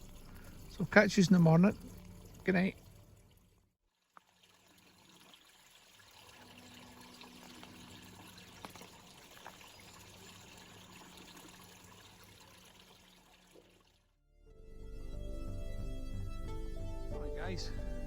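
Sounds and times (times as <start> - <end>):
stream flowing: 0.0 - 3.5, 4.2 - 14.0.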